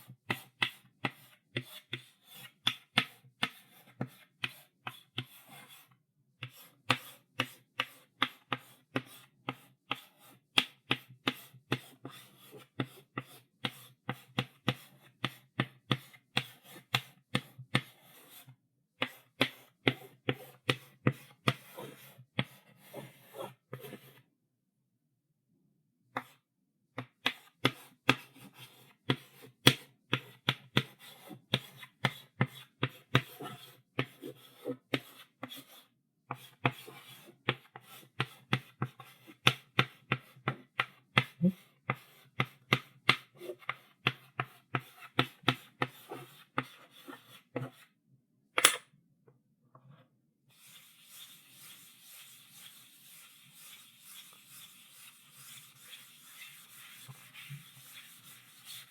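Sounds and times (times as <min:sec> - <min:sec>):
chalk tapping on blackboard: 0:00.0 - 0:05.8, 0:06.4 - 0:24.2, 0:26.1 - 0:26.4, 0:27.0 - 0:41.3, 0:41.9 - 0:47.8, 0:50.6 - 0:58.9
chalk rubbing on blackboard: 0:00.3 - 0:10.4, 0:11.2 - 0:24.2, 0:30.1 - 0:40.3, 0:50.5 - 0:58.9.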